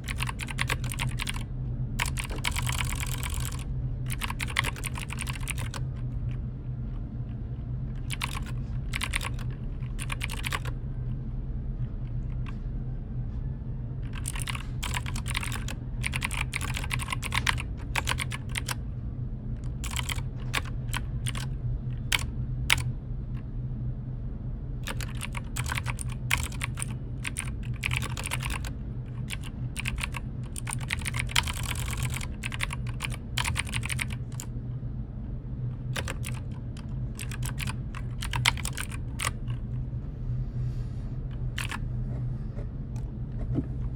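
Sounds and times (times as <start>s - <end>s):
typing on computer keyboard: 0.0s - 6.0s, 8.0s - 10.8s, 14.0s - 18.8s, 19.6s - 22.9s, 24.8s - 34.5s, 35.9s - 39.6s, 41.4s - 41.8s
low hum: 0.0s - 16.6s, 18.4s - 43.9s.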